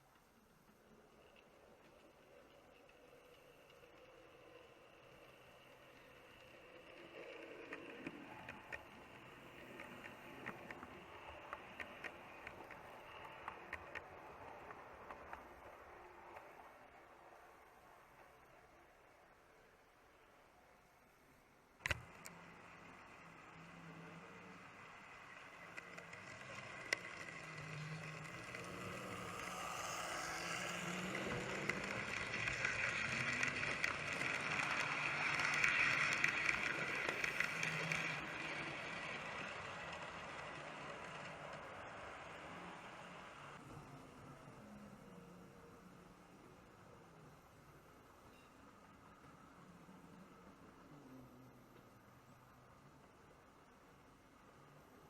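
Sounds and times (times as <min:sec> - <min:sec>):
wheels clicking over rail joints: 0:00.1 - 0:16.7, 0:21.8 - 0:43.6
model train motor hum: 0:00.7 - 0:20.5, 0:21.8 - 0:48.1.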